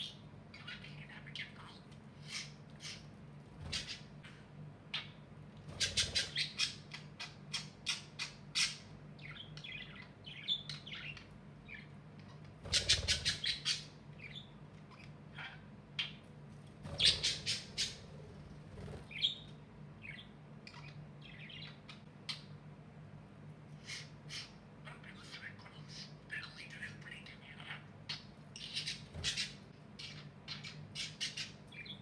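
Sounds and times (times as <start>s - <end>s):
budgerigars chirping: 0.0s - 22.5s, 23.8s - 32.0s
rapid squawks: 2.2s - 5.1s, 5.7s - 8.9s, 12.3s - 14.1s, 16.8s - 19.4s, 28.6s - 32.0s.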